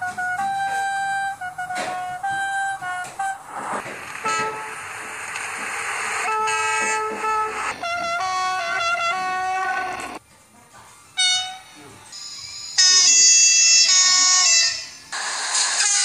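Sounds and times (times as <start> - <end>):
train horn blasts: 0.0 - 3.4, 4.3 - 4.7, 6.3 - 10.2
rushing train noise: 3.4 - 10.2.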